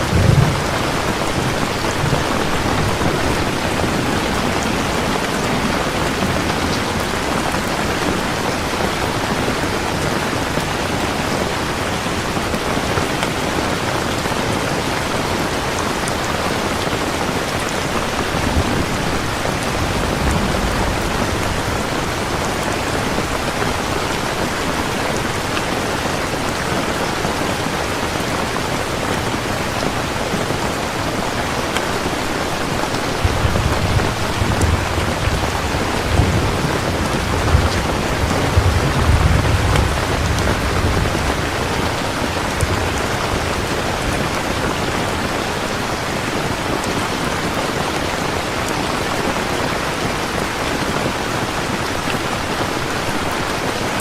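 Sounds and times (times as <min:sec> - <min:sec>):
rolling thunder rumble: 0:00.0 - 0:08.4, 0:17.9 - 0:25.0, 0:32.8 - 0:45.2
dense rainfall hissing: 0:00.0 - 0:54.0.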